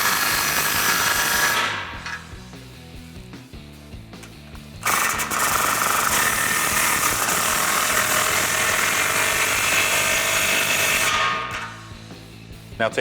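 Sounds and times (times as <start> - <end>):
impact wrench hammering a nut: 0.0 - 2.3, 4.8 - 11.9.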